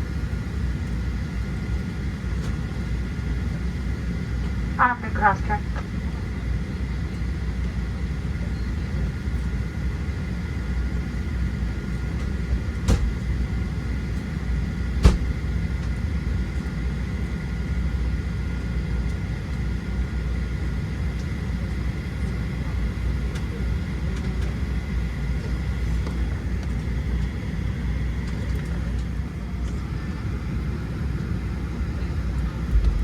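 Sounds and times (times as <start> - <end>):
faint steady whine: 0.0 - 12.2
aircraft cabin rumble: 0.0 - 33.0.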